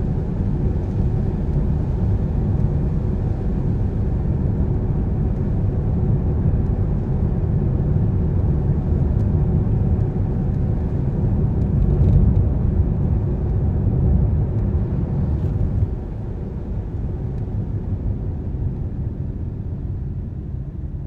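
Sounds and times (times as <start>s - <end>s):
car driving on wet road: 10.7s - 17.6s.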